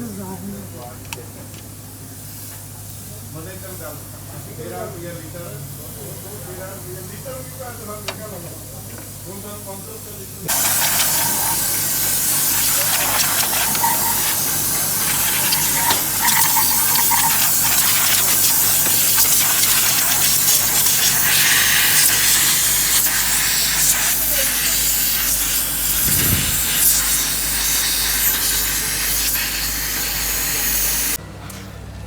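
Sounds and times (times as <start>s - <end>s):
pressurised spray hissing: 10.5s - 31.2s.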